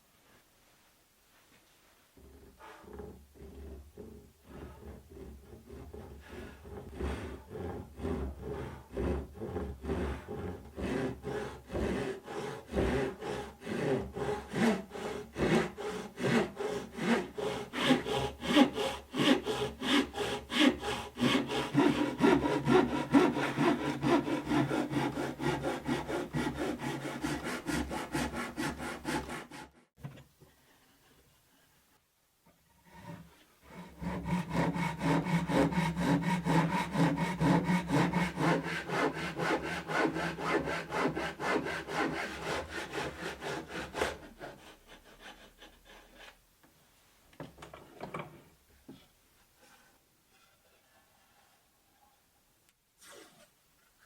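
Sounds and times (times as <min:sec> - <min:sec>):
hand saw cutting wood: 0:02.2 - 0:29.9, 0:32.8 - 0:46.4.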